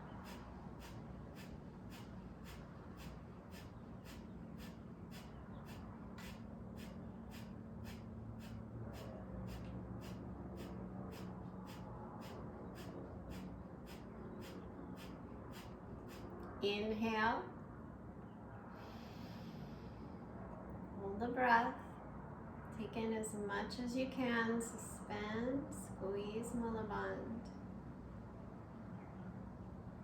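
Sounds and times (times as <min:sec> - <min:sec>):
low steady hum: 0:00.0 - 0:30.0
forceful nasal exhales: 0:00.1 - 0:16.3, 0:18.7 - 0:20.3.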